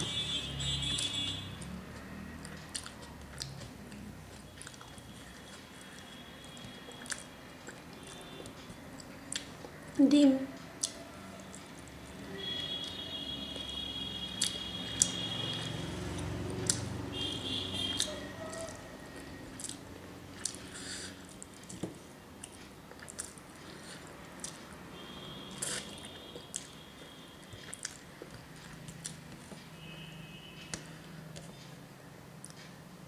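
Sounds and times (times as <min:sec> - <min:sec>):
mouth chewing: 0:02.4 - 0:09.8, 0:10.5 - 0:12.2, 0:17.9 - 0:21.8, 0:22.4 - 0:24.7, 0:25.5 - 0:29.5.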